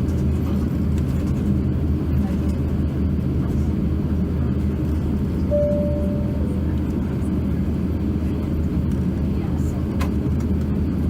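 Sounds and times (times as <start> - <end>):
low rumble in aircraft cabin: 0.0 - 11.0
single clear tone: 5.5 - 6.7.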